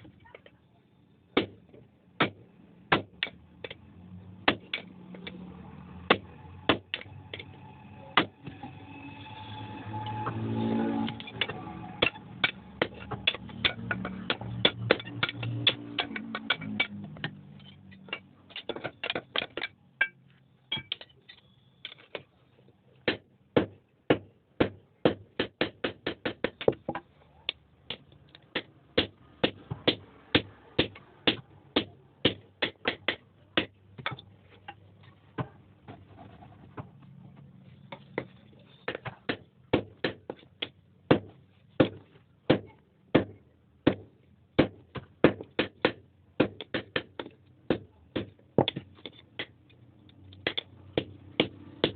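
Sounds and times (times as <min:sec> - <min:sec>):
hammer striking iron on anvil: 0:11.0 - 0:17.4.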